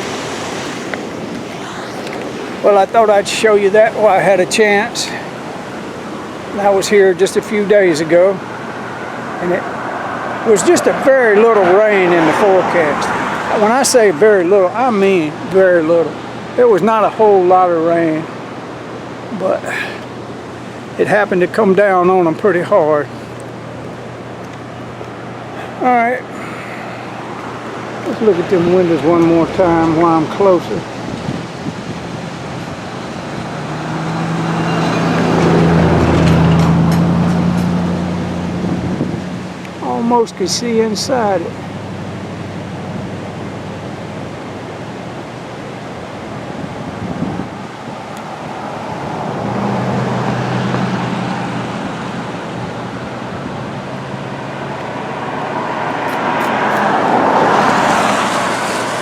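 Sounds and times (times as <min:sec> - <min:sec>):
car driving past: 0:00.0 - 0:03.2, 0:08.4 - 0:13.8, 0:24.2 - 0:39.7, 0:48.3 - 0:59.0
vehicle passing by: 0:00.0 - 0:04.4, 0:08.2 - 0:14.9, 0:19.4 - 0:40.1, 0:46.6 - 0:59.0.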